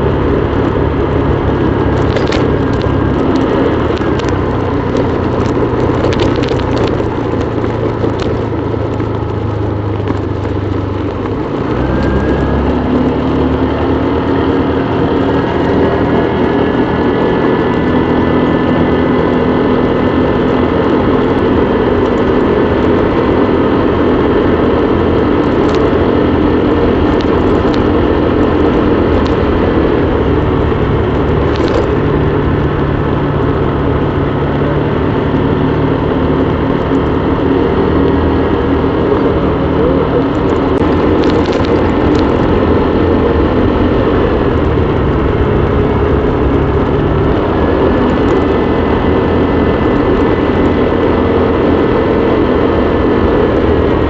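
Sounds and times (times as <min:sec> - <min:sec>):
small motorbike engine running: 0:00.0 - 0:54.0.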